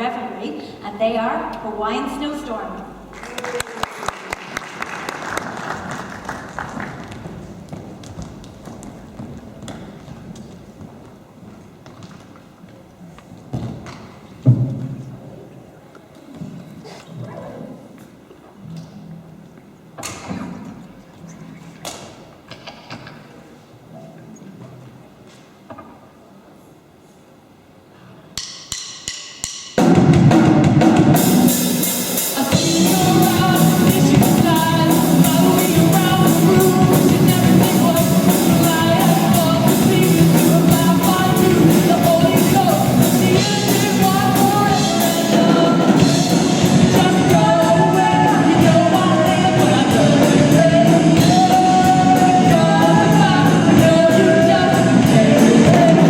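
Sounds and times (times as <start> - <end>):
live rock band playing: 29.8 - 56.0
lead singer singing: 32.2 - 56.0.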